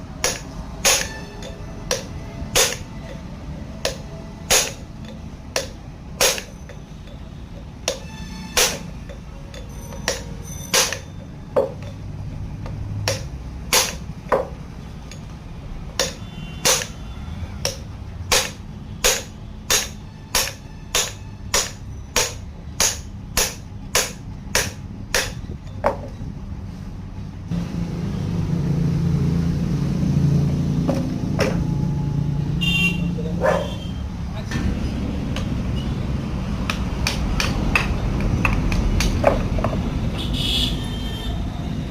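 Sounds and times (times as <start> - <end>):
hammer striking metal: 0.2 - 12.0, 13.0 - 15.3, 15.9 - 26.1, 34.5 - 39.4.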